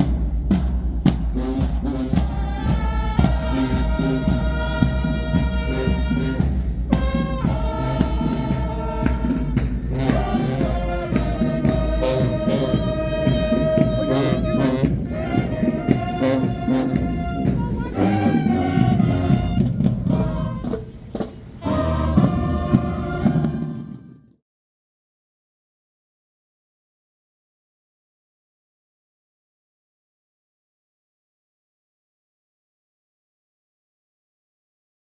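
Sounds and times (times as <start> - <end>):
drums: 0.0 - 24.2
marching band playing: 0.0 - 24.2
brass sustained notes: 1.2 - 24.2.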